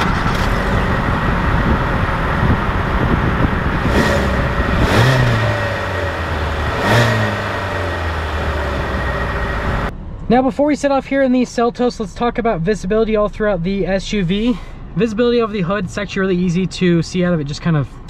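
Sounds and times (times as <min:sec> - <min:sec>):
car engine revving: 0:00.0 - 0:09.9.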